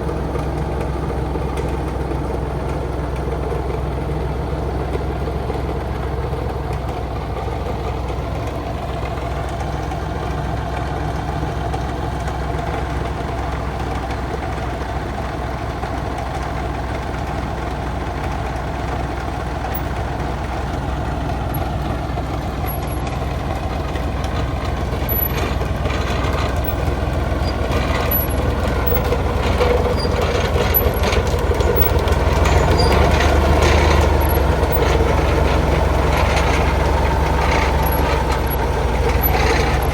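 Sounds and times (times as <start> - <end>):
heavy truck engine running: 0.0 - 39.9
knocks and rattles: 22.6 - 39.9.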